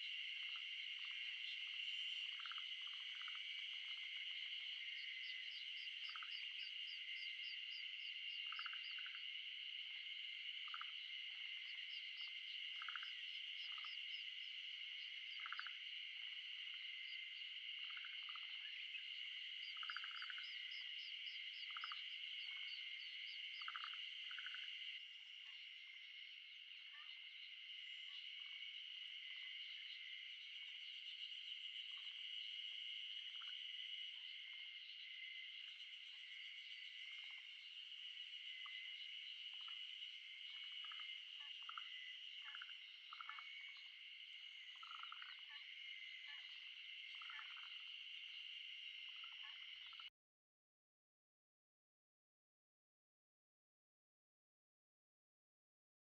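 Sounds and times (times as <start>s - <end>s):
chorus of frogs or insects: 0.0s - 50.1s.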